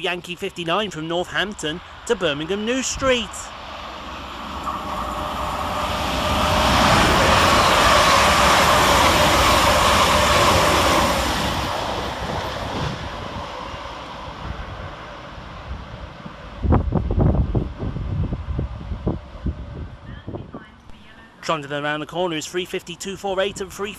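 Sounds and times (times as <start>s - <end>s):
train rushing past: 0.0s - 21.4s
electric whine: 3.8s - 10.9s.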